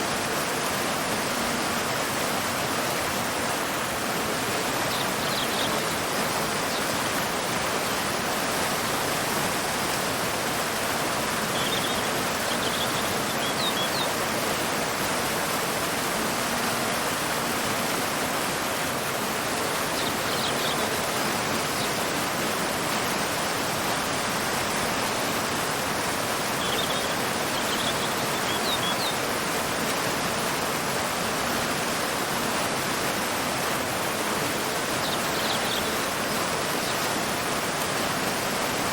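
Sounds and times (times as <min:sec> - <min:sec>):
waterfall rushing water: 0:00.0 - 0:38.9
faint bird chirps: 0:11.4 - 0:14.2, 0:26.5 - 0:29.2, 0:34.9 - 0:37.1.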